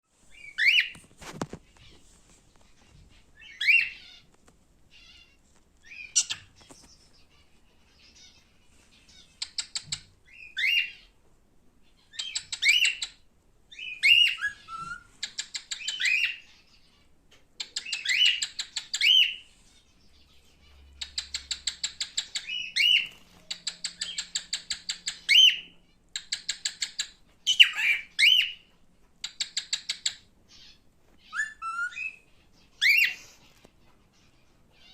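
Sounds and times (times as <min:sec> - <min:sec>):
cockatiel whistled chirps: 0:00.4 - 0:01.0, 0:03.4 - 0:04.1, 0:09.4 - 0:11.0, 0:13.8 - 0:16.5, 0:17.8 - 0:19.4, 0:21.1 - 0:25.7, 0:26.4 - 0:28.6, 0:31.2 - 0:33.3.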